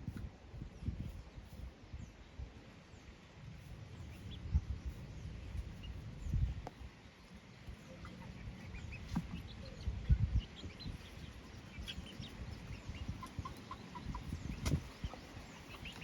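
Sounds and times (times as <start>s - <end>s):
chickens clucking: 4.0s - 16.0s.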